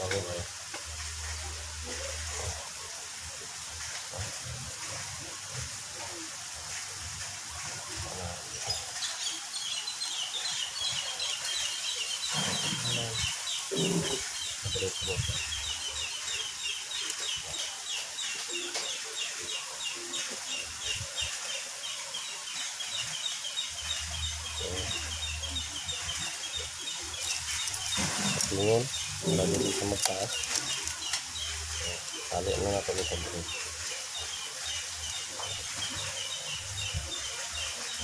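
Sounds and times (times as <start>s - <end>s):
bird chirping: 8.5s - 38.0s.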